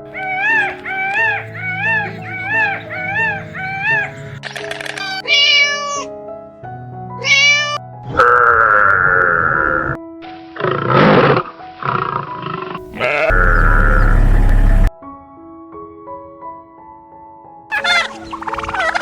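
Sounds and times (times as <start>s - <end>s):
animal calls: 0.0s - 5.9s, 10.6s - 14.9s, 17.7s - 19.0s
background music: 0.0s - 8.6s, 9.8s - 15.3s, 17.7s - 19.0s.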